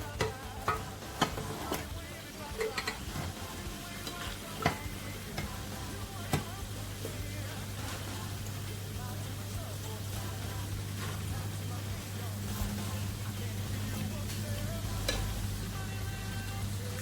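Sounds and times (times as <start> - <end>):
faint frying sizzle: 0.0 - 17.0
spoon scraping a cooking pot: 0.2 - 1.9, 2.5 - 8.4, 15.0 - 15.4.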